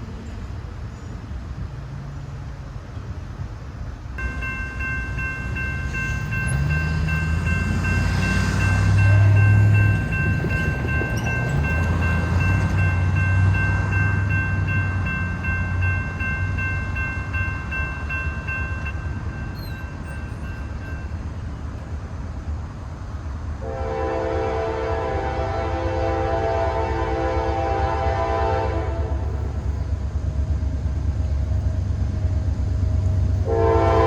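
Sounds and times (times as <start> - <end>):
diesel locomotives rumbling past: 0.0 - 34.0
multi-chime locomotive horn: 4.2 - 21.1, 23.6 - 29.5, 33.4 - 34.0.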